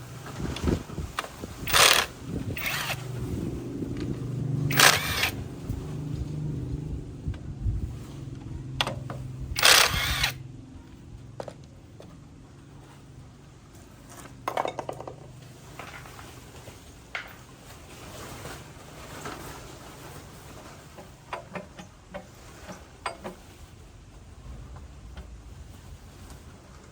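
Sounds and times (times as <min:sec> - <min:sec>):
low tool hum: 0:01.4 - 0:12.3.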